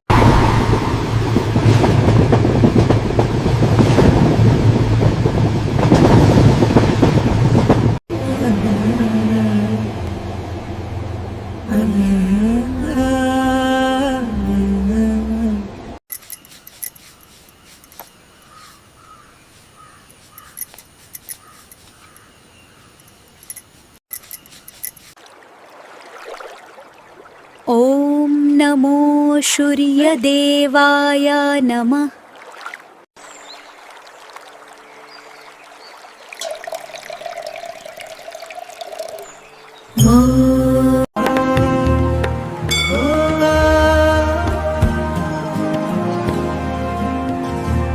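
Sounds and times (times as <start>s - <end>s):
bird calling: 16.4s - 23.7s
water trickling and pouring: 23.4s - 27.8s, 32.2s - 40.0s
chanted music: 39.7s - 47.9s.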